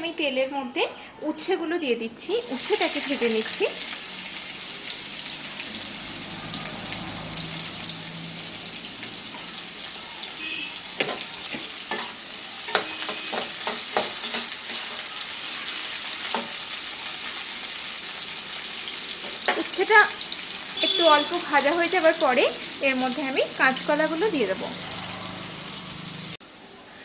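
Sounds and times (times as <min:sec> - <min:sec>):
vegetables sizzling in oil: 0:02.2 - 0:27.0
spatula scraping a pan: 0:10.9 - 0:16.7.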